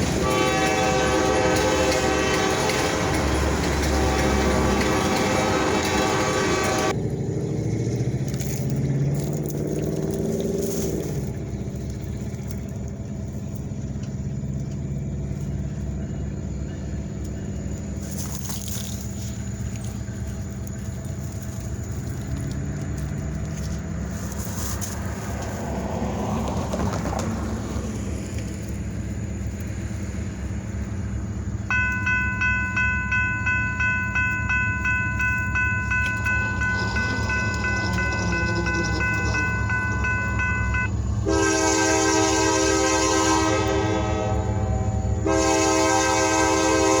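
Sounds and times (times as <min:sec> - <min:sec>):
diesel locomotive engine drone: 0:00.0 - 0:47.0
train rolling rumble: 0:00.0 - 0:47.0
bell ringing: 0:31.7 - 0:41.0.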